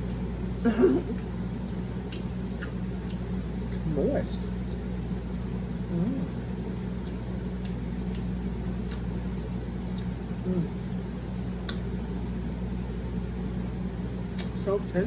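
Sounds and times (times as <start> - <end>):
person chewing: 0.0 - 3.9, 4.6 - 10.4, 14.3 - 14.6
steady low hum: 0.0 - 15.0
wet mouth clicks: 11.6 - 11.9.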